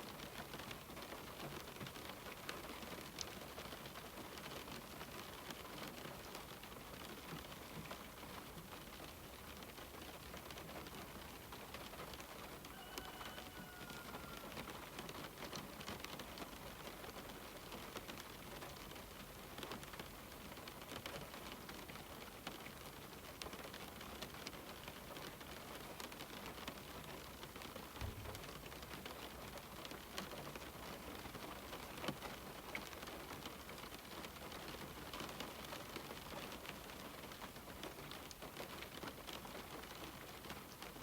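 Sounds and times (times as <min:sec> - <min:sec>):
rain on a window: 0:00.0 - 0:41.0
faint whistle-like tone: 0:12.7 - 0:14.5.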